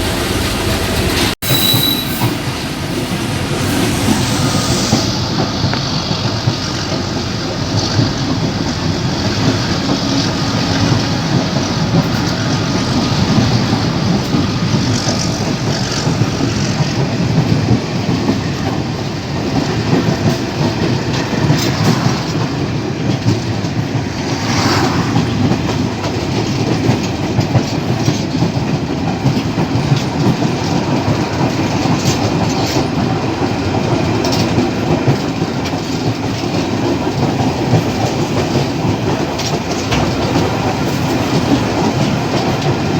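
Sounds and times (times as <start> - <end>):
train rumble: 0.0 - 42.9
wheels clacking over rail joints: 5.3 - 42.9.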